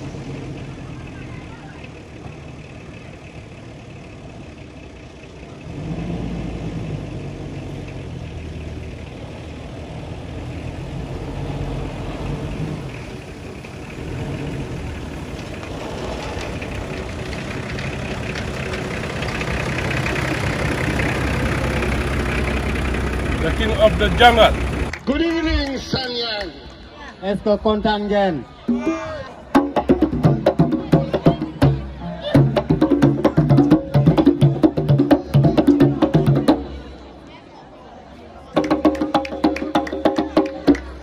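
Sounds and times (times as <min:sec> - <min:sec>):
engine running at low revs: 0:00.0 - 0:25.0.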